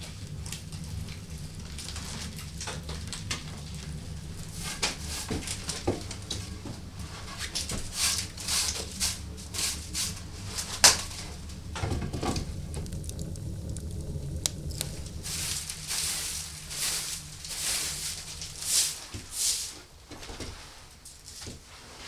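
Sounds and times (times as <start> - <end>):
low steady hum: 0.0 - 20.7
rustling: 0.0 - 22.0
light clicks: 11.7 - 18.6.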